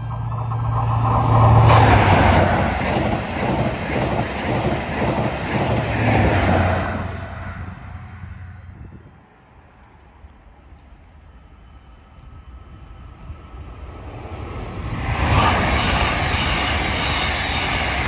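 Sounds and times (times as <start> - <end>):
wheels rattling over track: 0.0 - 11.2
passenger train passing: 0.0 - 18.0.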